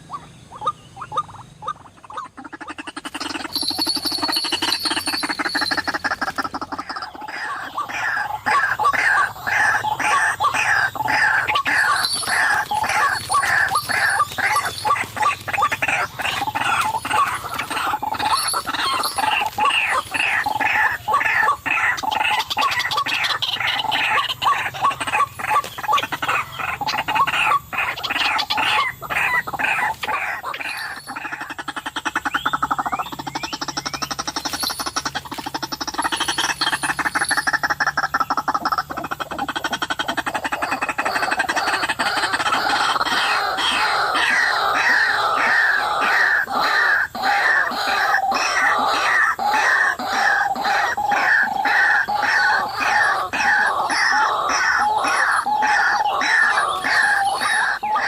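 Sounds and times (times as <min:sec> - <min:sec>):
bird calling rhythmically: 0:00.0 - 0:58.0
bird rasping rattle: 0:02.9 - 0:07.2, 0:10.5 - 0:22.3, 0:29.7 - 0:41.0.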